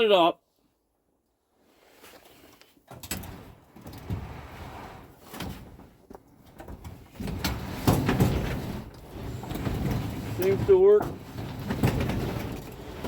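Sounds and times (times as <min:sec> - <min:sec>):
garage door rollers rumbling: 0:03.1 - 0:13.0.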